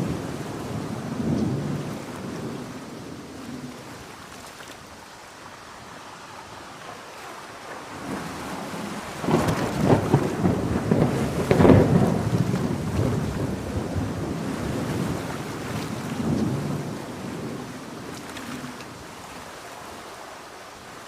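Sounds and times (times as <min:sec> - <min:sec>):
thunder rumbling and crackling: 0:00.0 - 0:04.2, 0:08.0 - 0:19.3
heavy rain: 0:00.0 - 0:21.0.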